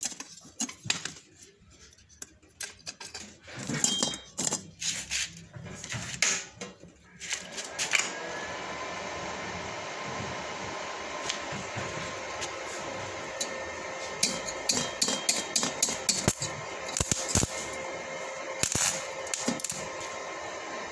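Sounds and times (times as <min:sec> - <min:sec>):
metal tools clinking: 0:01.9 - 0:05.5
welding arc hissing: 0:12.7 - 0:20.2.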